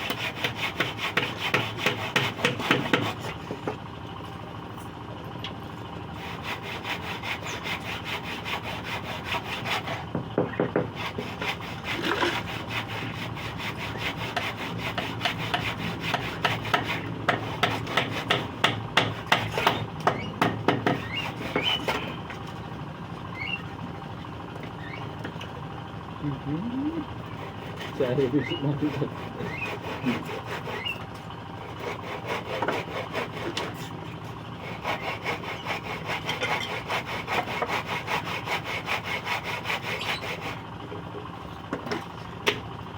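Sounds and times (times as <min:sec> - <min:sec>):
hand saw rasping through wood: 0:00.0 - 0:03.8, 0:06.2 - 0:22.6, 0:27.2 - 0:40.7.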